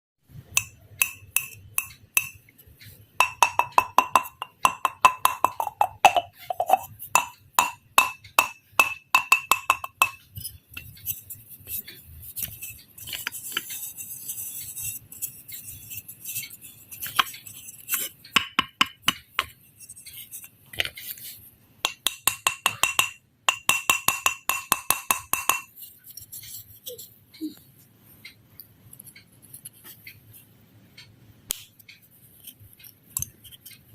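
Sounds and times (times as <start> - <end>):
sharp ringing taps: 3.2 - 6.4, 7.2 - 10.2, 21.9 - 25.7.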